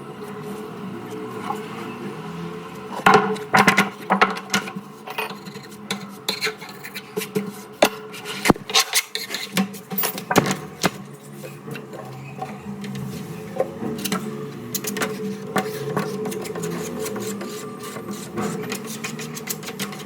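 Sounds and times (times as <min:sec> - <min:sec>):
metallic clatter of tools: 0:08.7 - 0:10.6.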